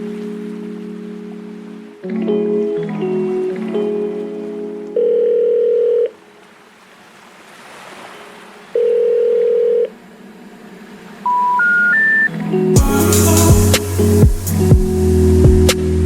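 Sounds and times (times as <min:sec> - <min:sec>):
telephone ringback tone: 0:05.0 - 0:06.2, 0:08.8 - 0:09.9, 0:11.3 - 0:12.3
short rising beeps: 0:11.2 - 0:12.3
faint hiss: 0:12.8 - 0:15.9.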